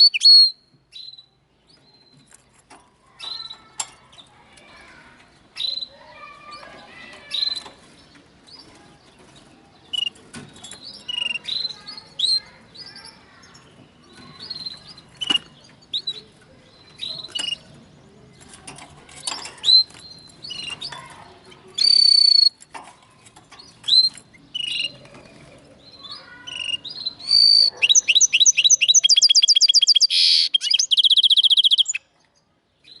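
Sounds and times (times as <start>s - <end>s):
fast bird trill: 0.0s - 0.6s, 21.8s - 22.6s, 26.0s - 32.0s
bird chirps and whistles: 0.0s - 1.3s, 21.8s - 22.6s, 26.5s - 32.0s.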